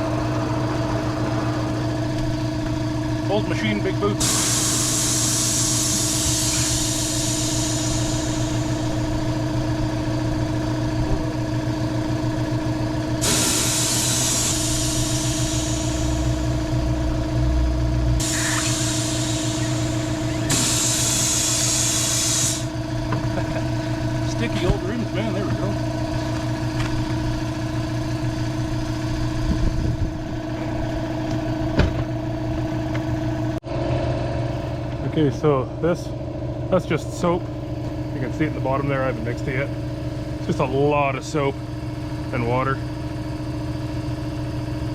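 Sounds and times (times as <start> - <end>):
engine running steadily: 0.0 - 44.9
compressed air hissing: 4.2 - 9.5, 13.2 - 16.8, 18.2 - 25.0.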